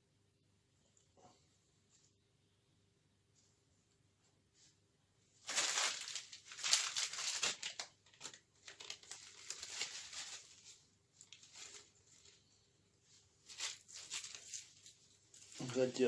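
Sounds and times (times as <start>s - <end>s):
paper crumpling by hand: 5.4s - 16.0s.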